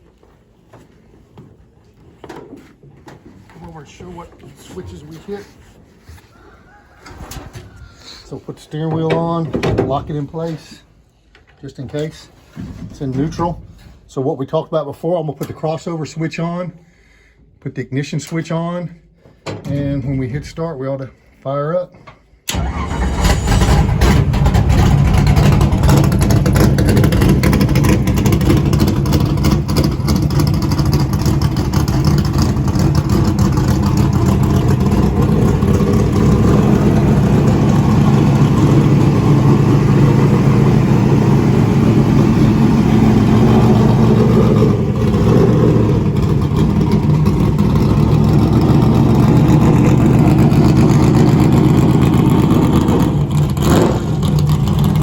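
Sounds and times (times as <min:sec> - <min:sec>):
race car engine starting: 0:22.5 - 0:55.0
race car engine running loudly: 0:23.2 - 0:55.0.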